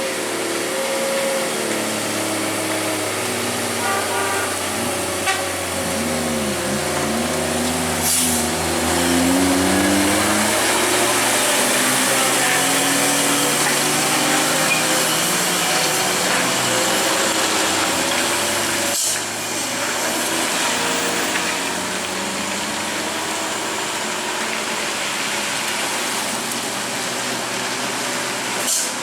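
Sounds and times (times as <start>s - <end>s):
vehicle engine running: 0.0s - 19.4s
road noise: 0.0s - 29.0s.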